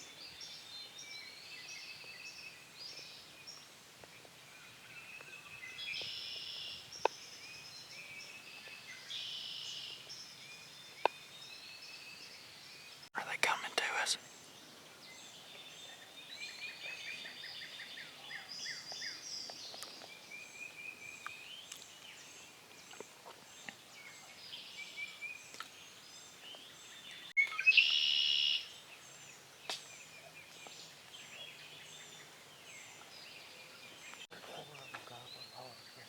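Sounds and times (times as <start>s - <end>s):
songbirds singing and chirping: 0.0s - 36.0s
loud close bird call: 27.4s - 28.7s.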